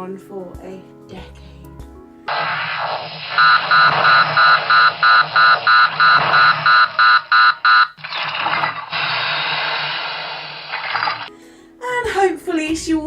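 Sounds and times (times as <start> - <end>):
electronic beeping alarm: 2.3 - 8.2
steady hiss and hum: 2.3 - 11.3.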